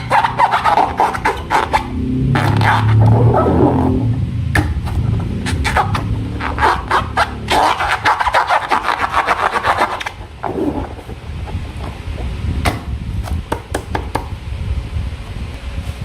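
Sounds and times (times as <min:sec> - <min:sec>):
rapid scraping strokes on slime: 0:00.0 - 0:04.0, 0:05.4 - 0:12.2.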